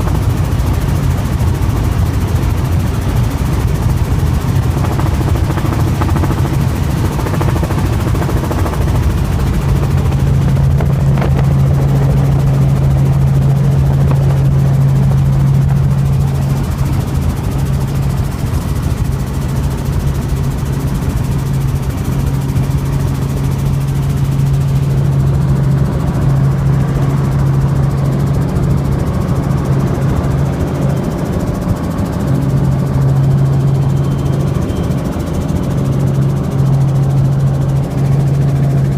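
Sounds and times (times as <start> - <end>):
helicopter engine and rotor: 0.0 - 38.9.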